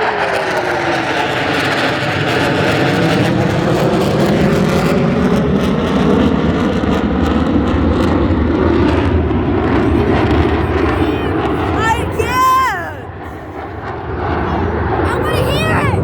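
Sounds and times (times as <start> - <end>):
jet aircraft flying past: 0.1 - 11.8.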